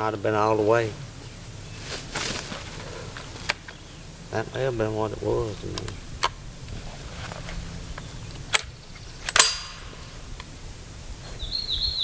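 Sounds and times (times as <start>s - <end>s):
small bird chirping: 0.6s - 12.0s
shotgun action metal clacks: 9.3s - 10.0s.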